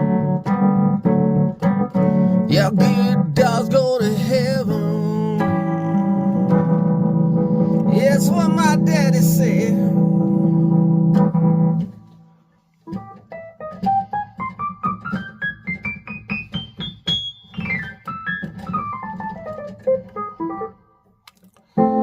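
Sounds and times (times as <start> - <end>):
keyboard solo: 0.0 - 12.2, 12.9 - 21.0, 21.8 - 22.0.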